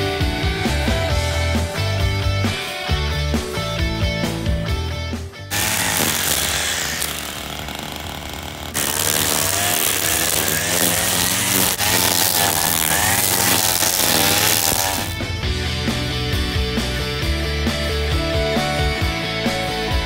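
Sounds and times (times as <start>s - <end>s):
string trimmer cutting grass: 5.5s - 15.4s.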